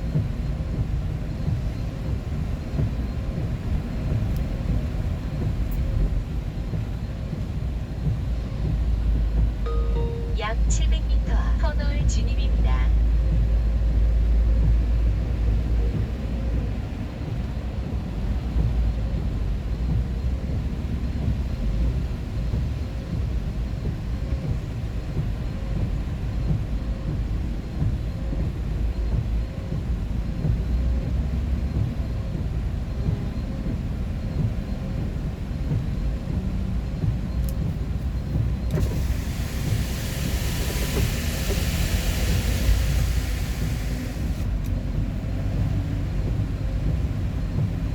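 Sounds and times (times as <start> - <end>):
vehicle low rumble: 0.0 - 47.9
wind or road noise hiss: 33.8 - 47.9.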